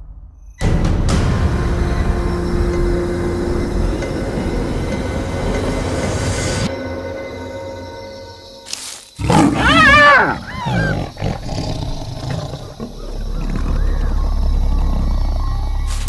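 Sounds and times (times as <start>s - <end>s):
documentary music: 0.6s - 12.2s
hyena crying: 9.2s - 15.8s.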